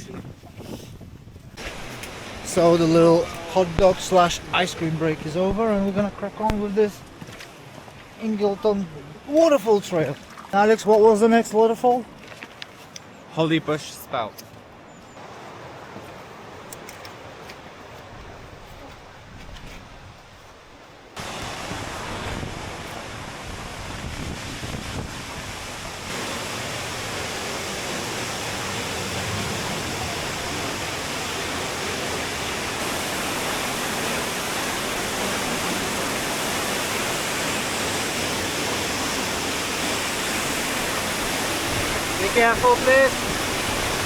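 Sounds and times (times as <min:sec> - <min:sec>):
waterfall rushing: 0:01.6 - 0:07.1, 0:21.2 - 0:44.0.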